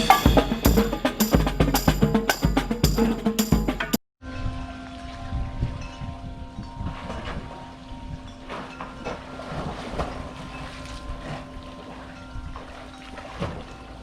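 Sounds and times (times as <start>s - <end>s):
steam train humming: 0.0s - 4.0s.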